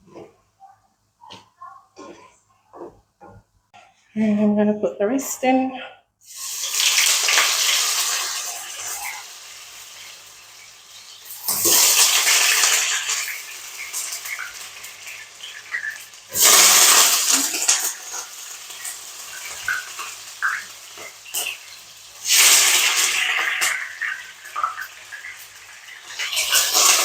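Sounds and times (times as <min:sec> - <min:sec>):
flatbread sizzling in hot oil: 0:06.2 - 0:27.0.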